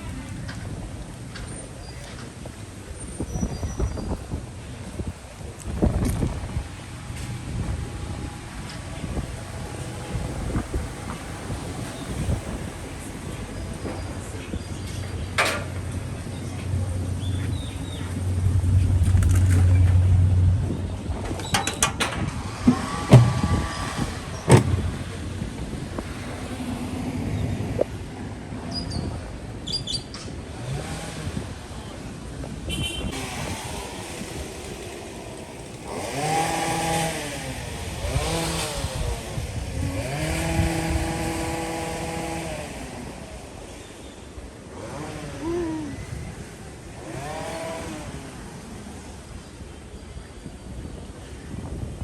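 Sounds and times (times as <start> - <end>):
vehicle rumble: 0.0 - 52.0
sharp clicks and knocks: 21.2 - 23.8, 24.5 - 25.0.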